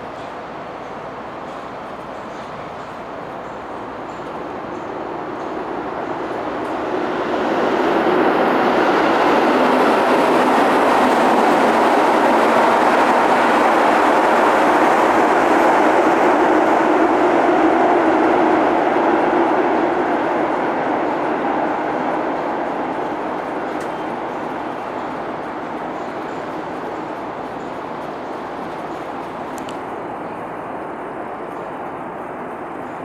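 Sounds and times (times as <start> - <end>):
train passing: 0.0 - 33.0.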